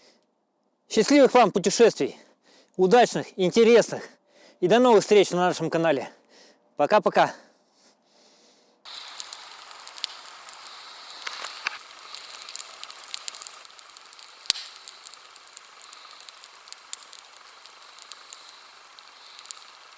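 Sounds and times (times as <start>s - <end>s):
campfire crackling: 8.9s - 19.9s.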